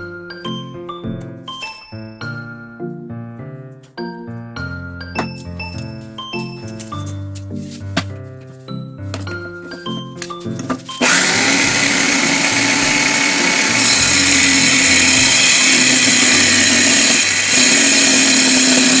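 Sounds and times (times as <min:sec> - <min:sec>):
electric drill driving saw blade: 0:11.0 - 0:19.0.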